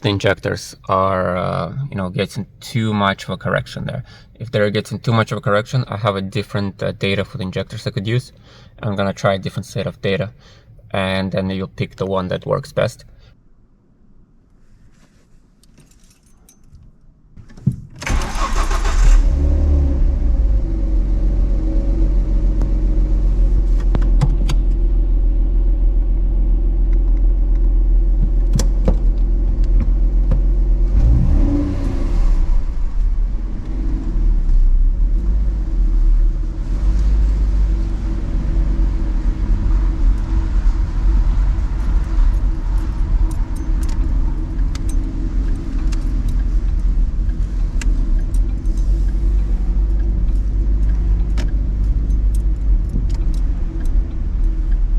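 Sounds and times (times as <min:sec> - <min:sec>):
car engine running: 0:18.2 - 0:54.9
light clicks and rattles: 0:41.6 - 0:54.9.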